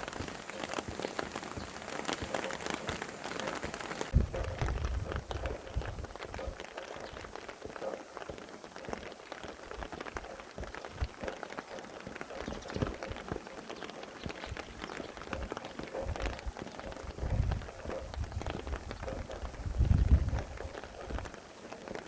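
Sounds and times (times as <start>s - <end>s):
rain pattering on surfaces: 0.0s - 22.0s
low wind rumble: 4.1s - 7.4s, 14.4s - 21.3s.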